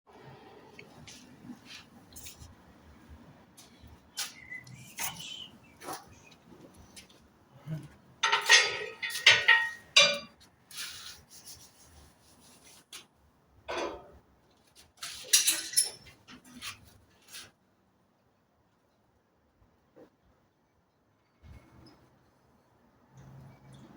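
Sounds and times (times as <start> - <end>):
metal clinking and rattling: 8.2 - 10.4, 15.0 - 16.8.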